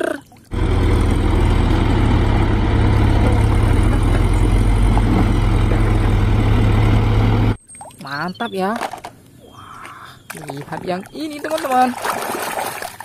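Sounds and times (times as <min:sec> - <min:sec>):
truck engine running: 0:00.5 - 0:07.6
truck rolling over gravel: 0:00.6 - 0:07.2.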